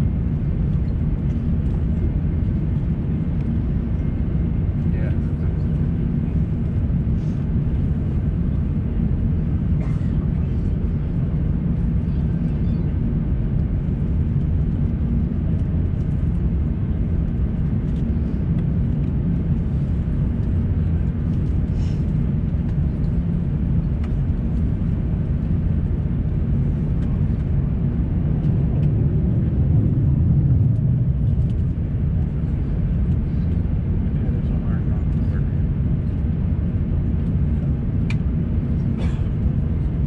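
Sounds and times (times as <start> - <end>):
airplane cabin engine rumble: 0.0 - 40.0.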